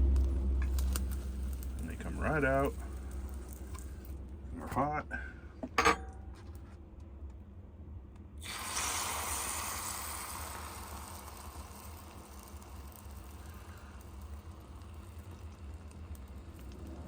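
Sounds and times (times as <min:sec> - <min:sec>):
egg sizzling in waffle maker: 0:00.0 - 0:04.2, 0:08.4 - 0:17.0.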